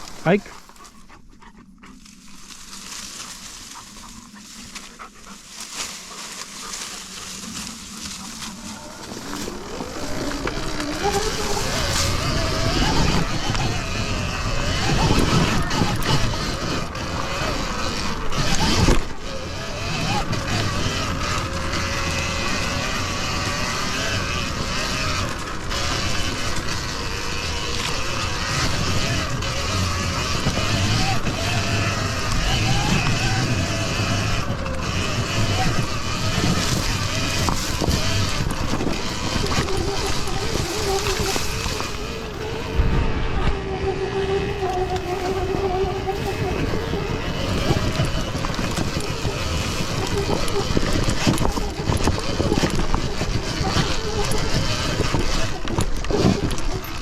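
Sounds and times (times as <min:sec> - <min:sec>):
tyre noise: 0:00.0 - 0:57.0
dog panting: 0:00.4 - 0:02.3, 0:03.5 - 0:10.3
electric motor whine: 0:01.7 - 0:57.0
wind rush on microphone: 0:07.2 - 0:57.0.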